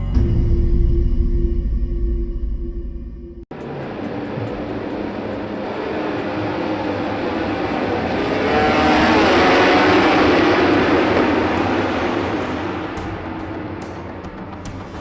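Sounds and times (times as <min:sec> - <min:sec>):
racing motorcycle engine passing: 0:03.6 - 0:14.8.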